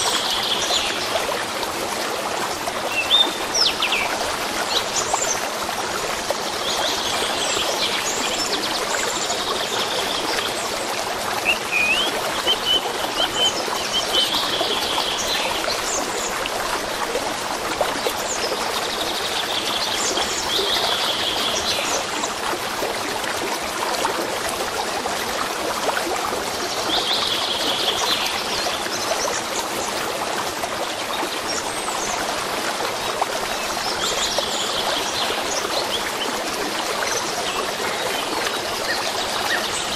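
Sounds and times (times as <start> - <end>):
stream flowing: 0.0 - 39.9
songbirds chirping: 11.4 - 15.6.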